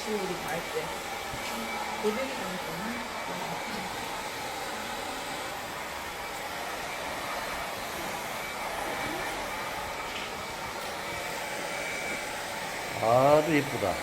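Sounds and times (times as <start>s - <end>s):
hair dryer blowing: 0.0s - 14.0s.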